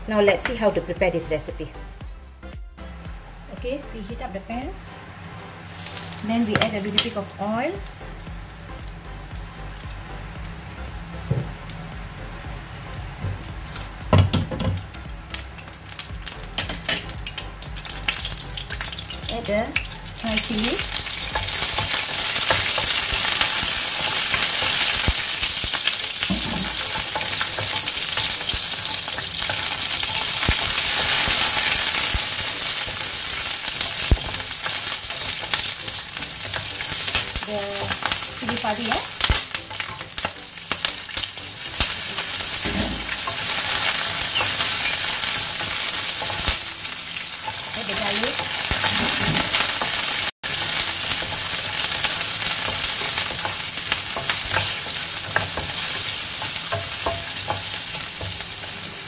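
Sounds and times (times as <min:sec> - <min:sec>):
chillies and garlic sizzling in oil: 0:03.6 - 0:59.0
wooden spatula scraping wok: 0:18.8 - 0:46.7, 0:47.3 - 0:59.0.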